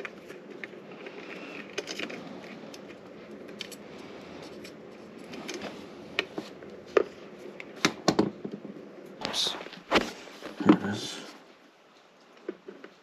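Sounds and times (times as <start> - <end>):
hand tools and wire clicking: 0.0 - 8.3.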